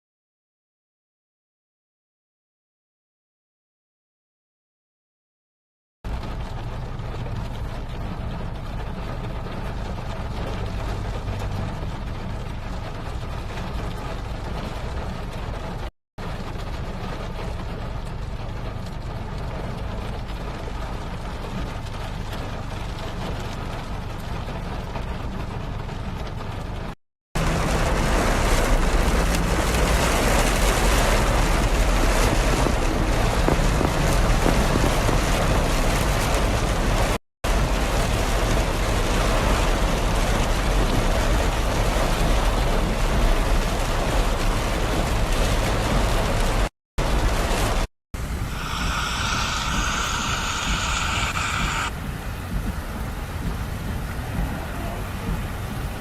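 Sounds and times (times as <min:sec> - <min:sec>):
car interior road noise: 0:27.4 - 0:56.0.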